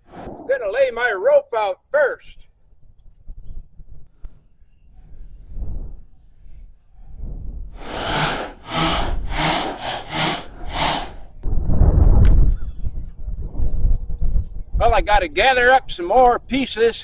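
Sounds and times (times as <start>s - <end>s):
loud low rumble: 0.0s - 1.2s, 7.8s - 13.9s
rope rasping pulled by hand: 7.8s - 11.3s.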